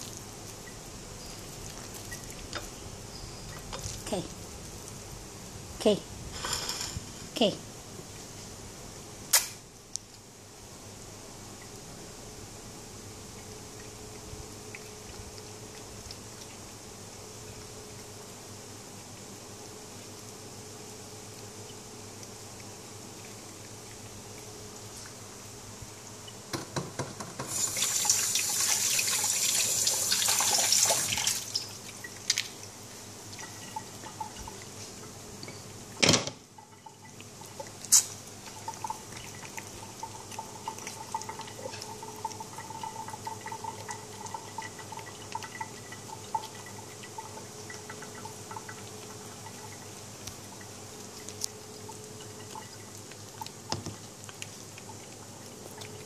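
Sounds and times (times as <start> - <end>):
tap water running into sink: 26.5 - 32.4
faint small sounds: 31.6 - 56.0.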